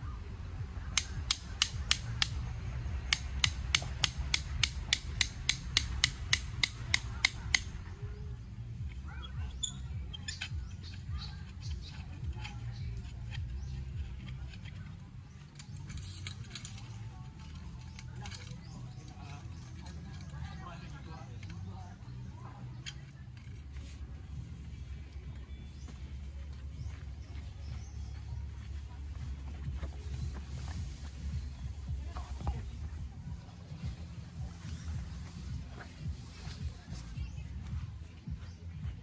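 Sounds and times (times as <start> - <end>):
faint background music: 0.0 - 39.0
low steady hum: 0.0 - 39.0
sharp clicks: 1.0 - 2.4, 3.1 - 7.8.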